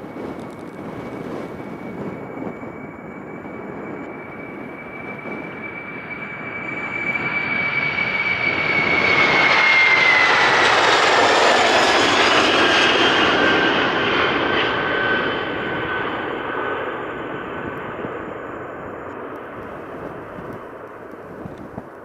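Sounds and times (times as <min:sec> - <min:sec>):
high engine whine: 0:00.0 - 0:22.0
jet engines roaring: 0:00.0 - 0:22.0.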